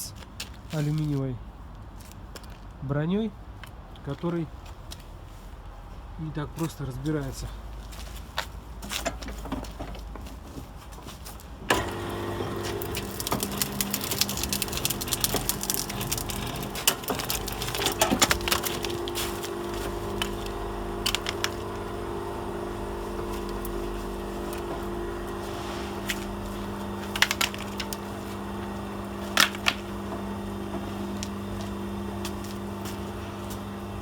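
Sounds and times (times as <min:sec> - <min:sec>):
machine motor hum: 0:11.7 - 0:34.0
cable armour cracking and snapping: 0:12.7 - 0:19.1.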